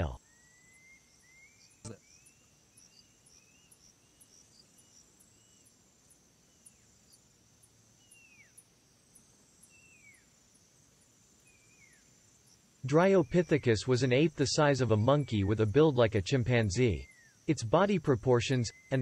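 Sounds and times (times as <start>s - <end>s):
short whistled calls: 0.0s - 3.8s
high insect chirps: 0.0s - 19.0s
insects humming: 0.0s - 19.0s.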